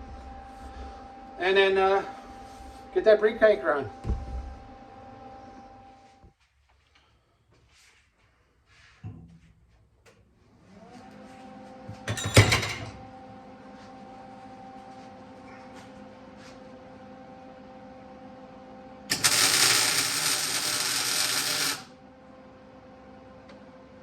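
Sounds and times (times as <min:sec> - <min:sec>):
steady machine hum: 0:00.0 - 0:06.3, 0:12.0 - 0:24.0
welding crackling hiss: 0:19.1 - 0:21.9.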